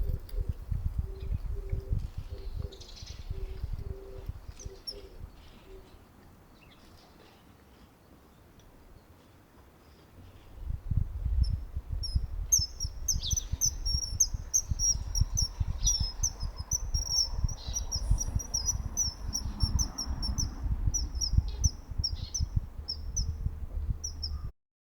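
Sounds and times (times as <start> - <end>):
low uneven rumble: 10.4 - 24.5.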